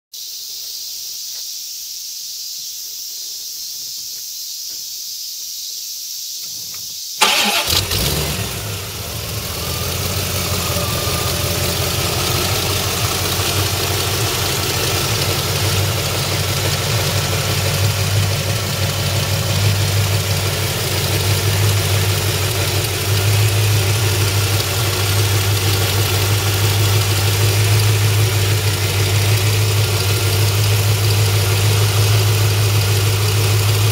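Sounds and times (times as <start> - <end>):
steady hiss: 0.2 - 7.2
car engine starting and idling: 7.2 - 33.9.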